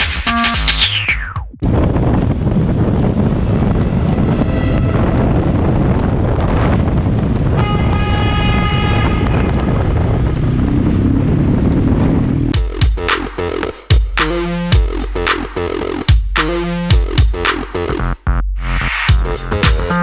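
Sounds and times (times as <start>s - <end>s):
vehicle engine rumbling: 1.5s - 13.9s
wind noise: 1.6s - 12.6s
vehicle horn: 3.9s - 5.6s, 7.5s - 9.9s.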